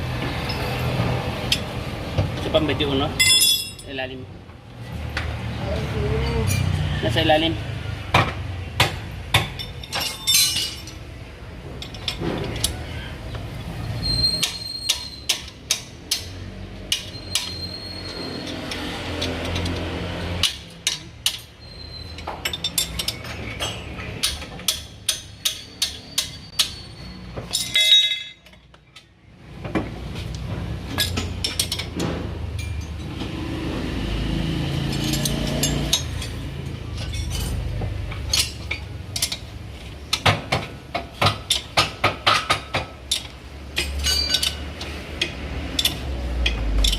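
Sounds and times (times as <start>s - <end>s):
metal tools clinking on metal: 2.5s - 4.2s, 6.3s - 6.8s, 9.4s - 11.1s, 11.7s - 13.0s, 13.8s - 29.2s, 30.9s - 33.2s, 34.7s - 40.3s, 40.9s - 46.9s.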